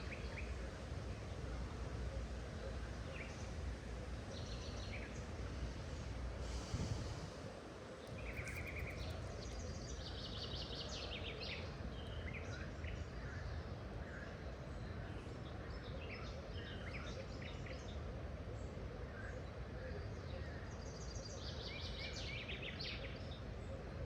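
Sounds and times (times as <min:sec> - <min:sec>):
low rumbling background noise: 0:00.0 - 0:24.0
small birds chirping and trilling: 0:08.1 - 0:13.7.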